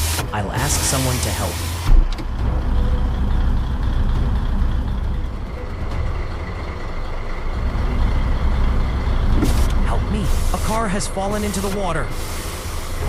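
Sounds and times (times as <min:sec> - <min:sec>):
large vehicle engine rumbling: 0:00.0 - 0:13.0.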